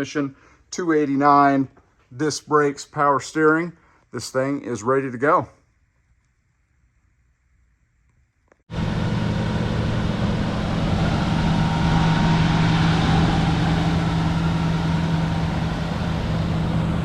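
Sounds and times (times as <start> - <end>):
car engine idling: 8.7 - 17.0.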